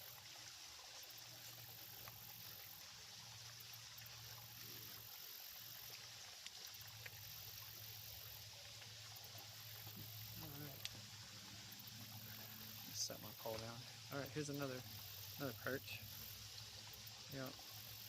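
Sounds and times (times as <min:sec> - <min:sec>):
small creek water running: 0:00.0 - 0:18.0
high hiss: 0:09.7 - 0:18.0.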